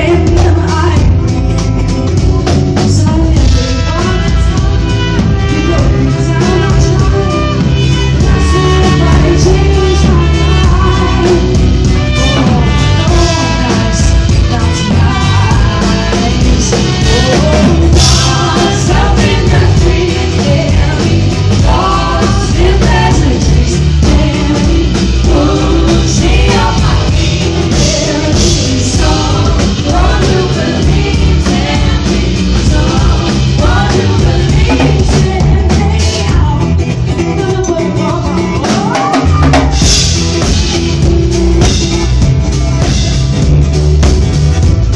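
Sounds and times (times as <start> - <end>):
person singing: 0.0 - 42.1
drum kit: 0.0 - 44.9
live band music: 0.0 - 44.9.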